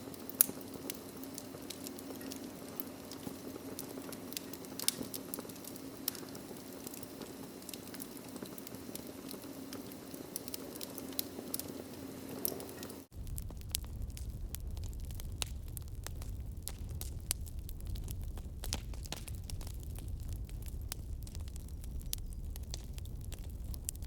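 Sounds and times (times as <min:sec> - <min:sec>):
wood fire crackling: 0:00.0 - 0:24.0
low rumble: 0:13.1 - 0:24.0.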